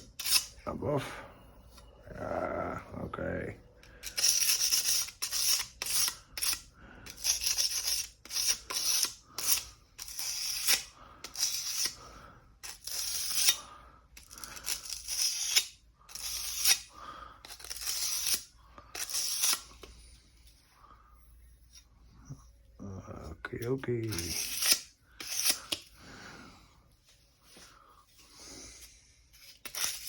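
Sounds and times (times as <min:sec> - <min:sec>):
abrasive paper scraping steel: 0:23.7 - 0:25.9.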